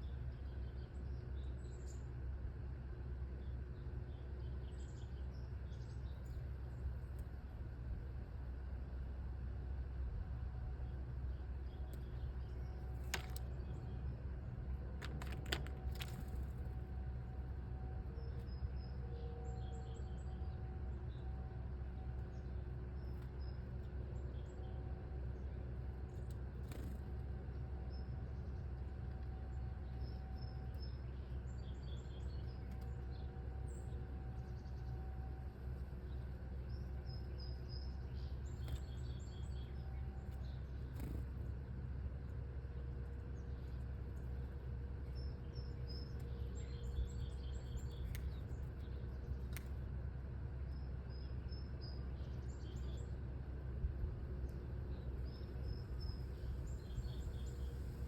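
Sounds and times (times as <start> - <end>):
small birds chirping: 0.0 - 7.4, 10.7 - 17.4, 18.0 - 53.7, 54.3 - 58.0
steady low rumble: 0.0 - 58.0.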